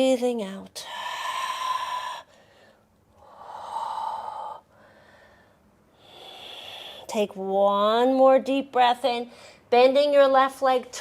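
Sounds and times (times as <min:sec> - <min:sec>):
woman breathing deeply: 0:00.8 - 0:07.1.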